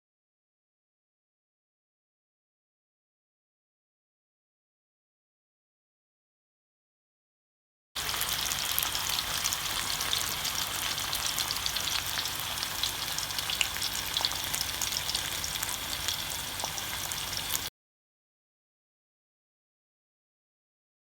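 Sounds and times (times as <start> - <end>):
food sizzling in hot oil: 8.0 - 17.7.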